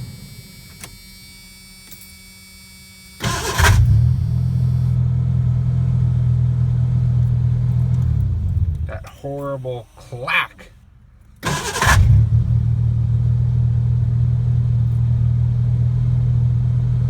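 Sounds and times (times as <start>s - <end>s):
engine idling: 3.2s - 16.9s.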